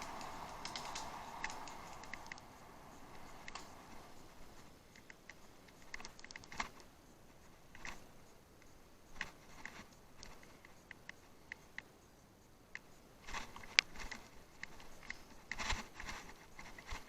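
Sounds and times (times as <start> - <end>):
bicycle clicks and ticks: 0.0 - 17.0
low hiss: 0.0 - 17.0.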